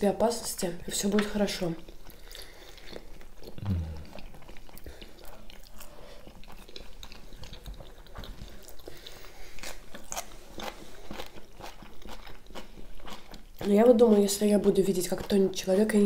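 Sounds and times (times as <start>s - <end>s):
biting and chewing dumplings: 1.0s - 16.0s
mouth clicks: 3.5s - 4.2s.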